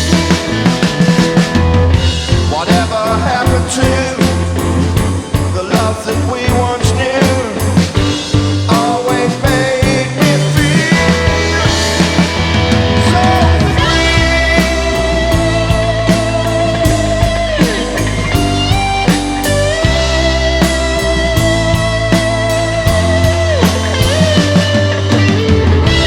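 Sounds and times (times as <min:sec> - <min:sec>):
rock band playing: 0:00.0 - 0:26.0.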